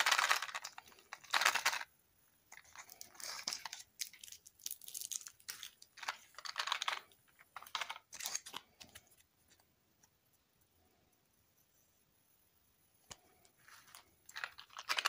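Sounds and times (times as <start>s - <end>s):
plastic and cardboard clicks and rustles: 0.0s - 1.9s, 2.5s - 9.6s, 13.1s - 15.0s.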